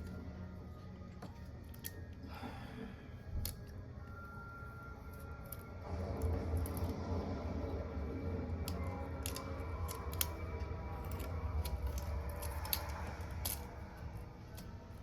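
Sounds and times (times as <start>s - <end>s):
low hum: 0.0s - 15.0s
hand tools clicking and scraping: 8.7s - 13.8s.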